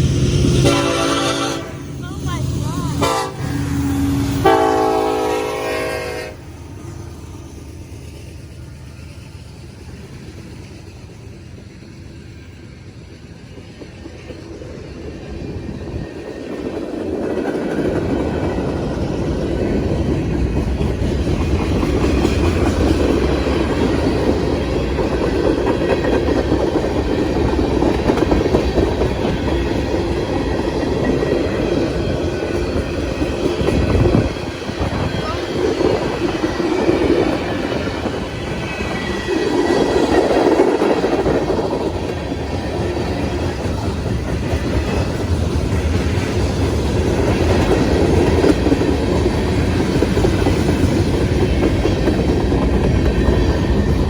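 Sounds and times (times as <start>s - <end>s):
train wheels on rails: 0.0s - 54.0s
train horn chord: 0.5s - 1.9s, 3.0s - 6.5s.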